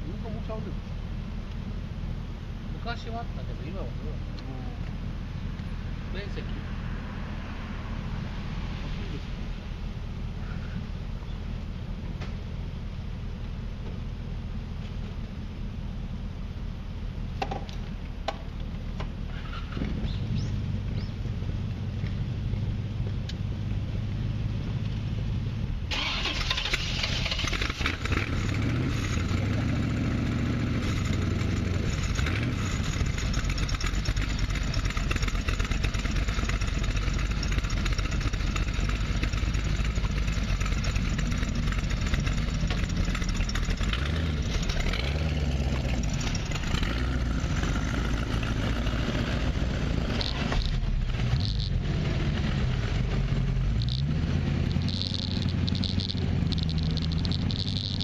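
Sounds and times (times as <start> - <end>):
motorcycle engine idling: 9.6 - 26.2, 27.2 - 51.7, 54.7 - 58.0.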